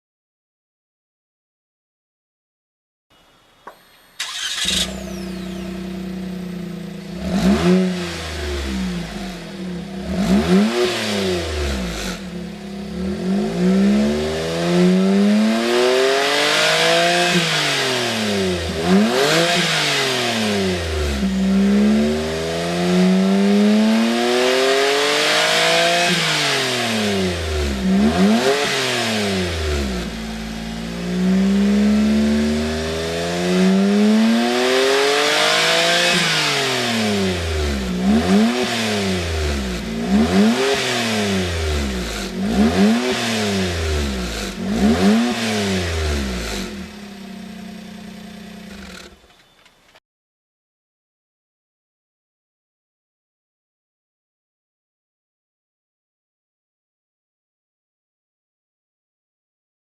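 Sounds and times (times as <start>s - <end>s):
car engine revving: 3.7s - 49.2s.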